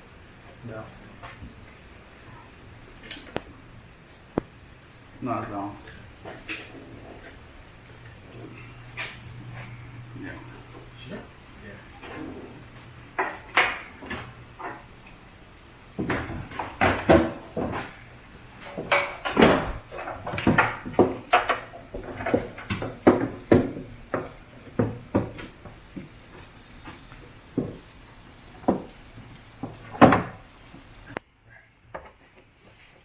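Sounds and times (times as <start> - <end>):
car parts and tools clattering: 5.8 - 11.0, 11.9 - 15.2, 15.9 - 30.5.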